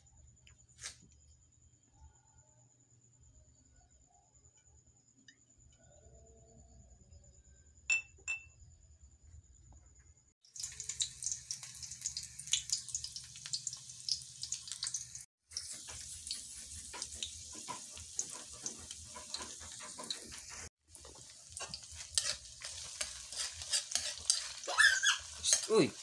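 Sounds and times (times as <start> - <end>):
food sizzling in hot oil: 10.4 - 26.0.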